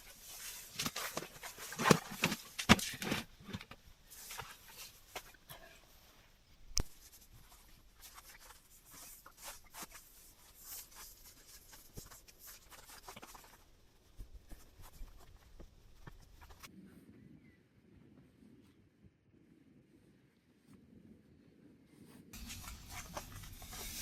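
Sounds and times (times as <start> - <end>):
rustling and small clicks of handling: 0.0 - 5.6.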